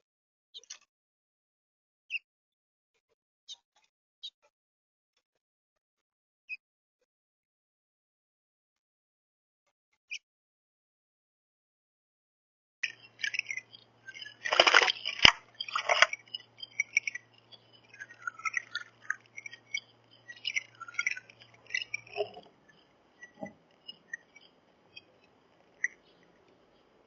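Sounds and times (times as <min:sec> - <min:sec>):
songbirds chirping: 0:12.8 - 0:27.0.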